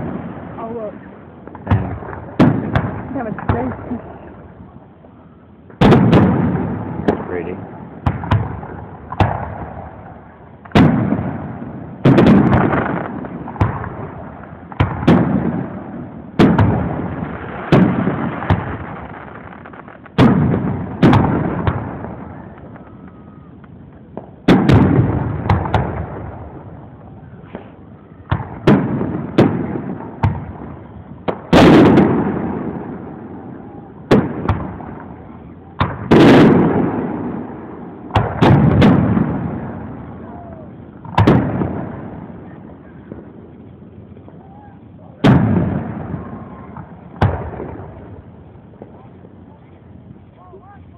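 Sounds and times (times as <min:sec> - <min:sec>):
fireworks bursting: 0:00.0 - 0:50.9
crackling pops: 0:16.4 - 0:26.4, 0:27.0 - 0:32.5, 0:40.2 - 0:50.9.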